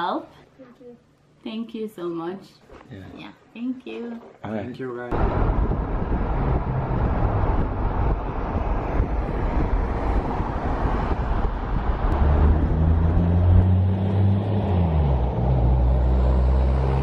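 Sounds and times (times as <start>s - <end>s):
motor vehicle engine rumble: 5.1s - 17.0s.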